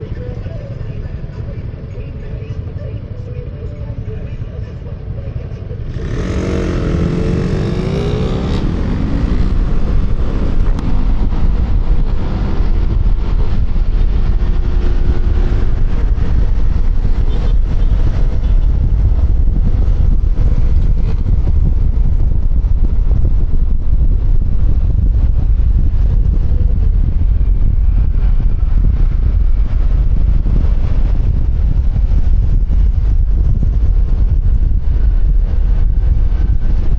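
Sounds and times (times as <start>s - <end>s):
wind rumble on microphone: 0.0s - 36.9s
scooter engine accelerating: 5.8s - 22.2s.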